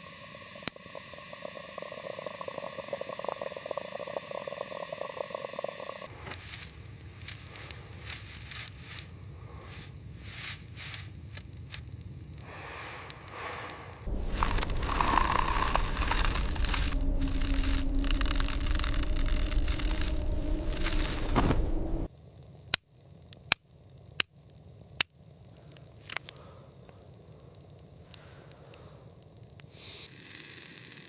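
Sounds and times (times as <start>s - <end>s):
scrapes and clicks: 6.1s - 22.1s, 25.0s - 31.0s
crackling and rustling: 6.1s - 31.0s
low rushing noise: 12.5s - 22.1s.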